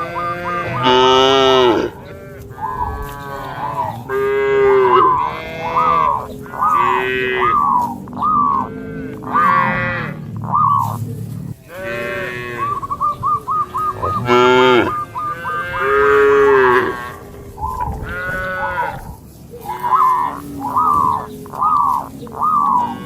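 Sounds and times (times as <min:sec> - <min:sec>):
cattle mooing: 0:00.0 - 0:23.0.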